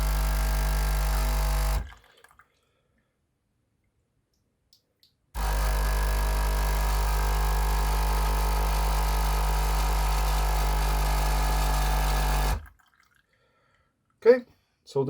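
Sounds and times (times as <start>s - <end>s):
coffee machine pump buzzing: 0.0s - 2.0s, 5.4s - 12.7s.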